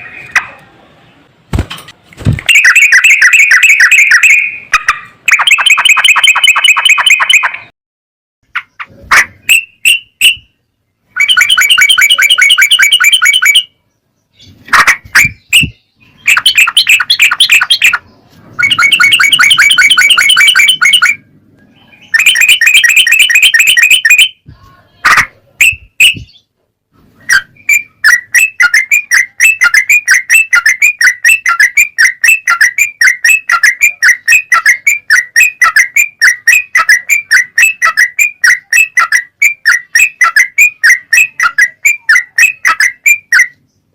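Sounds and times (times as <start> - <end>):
songbird trilling and chirping: 2.4 - 4.8, 8.5 - 25.0, 25.6 - 26.5, 27.2 - 43.9.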